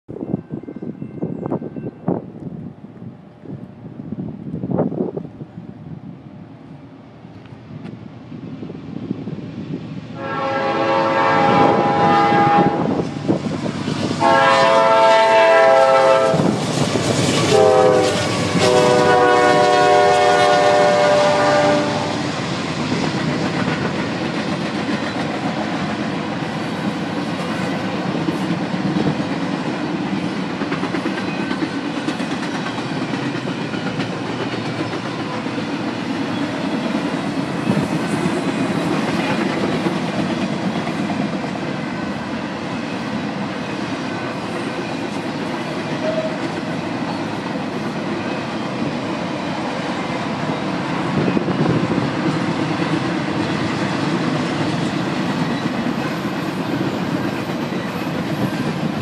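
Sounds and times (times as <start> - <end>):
locomotive horn blasts: 10.2 - 13.0, 14.2 - 16.5, 17.5 - 22.2, 46.0 - 46.4.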